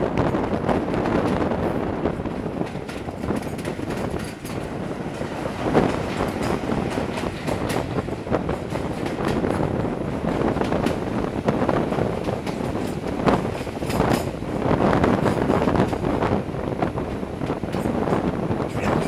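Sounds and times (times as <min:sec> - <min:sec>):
train coach running on track: 0:00.0 - 0:19.0
wheels clicking over rails: 0:02.3 - 0:11.1, 0:11.8 - 0:16.1.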